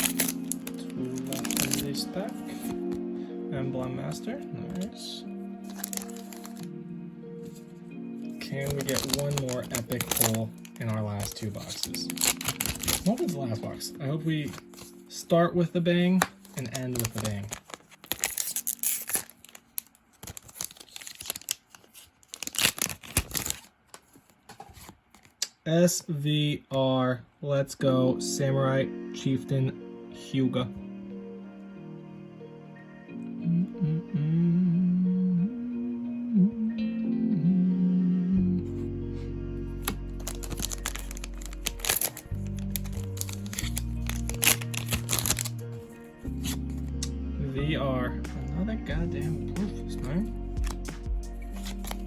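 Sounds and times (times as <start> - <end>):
foil wrapper tearing and crinkling: 0.0 - 2.0, 5.7 - 6.7, 8.4 - 13.4, 14.5 - 15.0, 16.2 - 25.4, 39.8 - 45.8, 50.6 - 52.0
cards being handled: 0.0 - 3.0, 5.7 - 6.7, 8.4 - 13.4, 14.4 - 15.0, 16.1 - 25.4, 39.8 - 47.0, 50.6 - 52.0
background music with bass line: 33.1 - 52.0.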